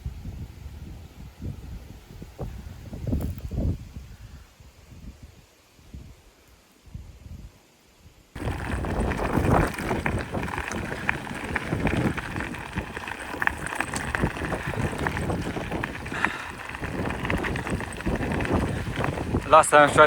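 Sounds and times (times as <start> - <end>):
wind buffeting microphone: 0.0 - 6.2, 8.4 - 20.0
bike rattling: 8.4 - 20.0
bike tyres crunching: 8.4 - 20.0.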